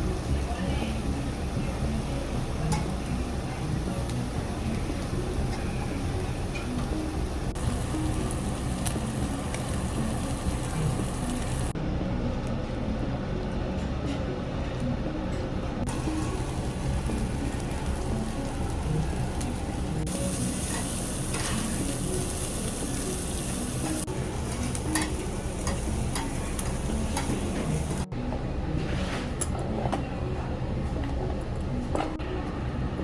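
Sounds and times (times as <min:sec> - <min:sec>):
fire crackling: 0:00.0 - 0:11.8, 0:15.9 - 0:28.1
meat sizzling: 0:00.0 - 0:11.8, 0:15.9 - 0:28.1.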